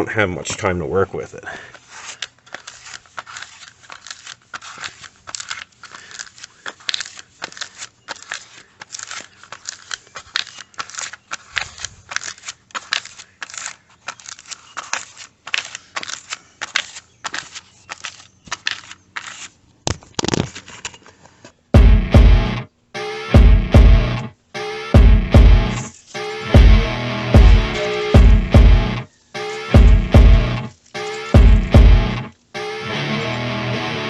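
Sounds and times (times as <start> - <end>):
spreader scraping putty: 1.7 - 19.6, 29.3 - 31.4.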